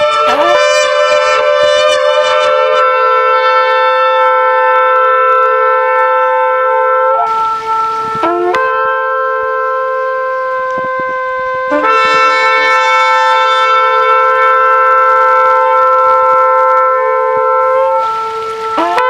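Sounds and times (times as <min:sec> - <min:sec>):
ram's horns blasting: 0:00.0 - 0:19.0.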